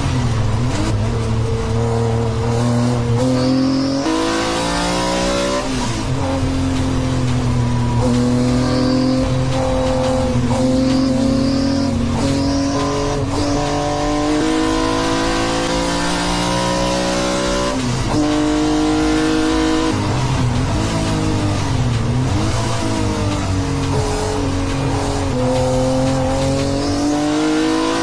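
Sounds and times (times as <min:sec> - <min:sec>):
race car engine changing gear: 0:00.0 - 0:28.0.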